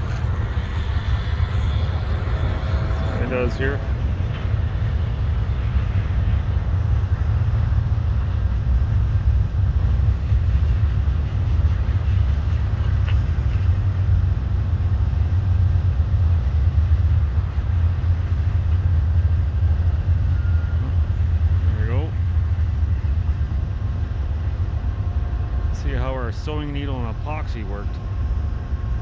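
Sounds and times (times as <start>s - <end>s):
motorcycle engine rumbling: 0.0s - 4.2s.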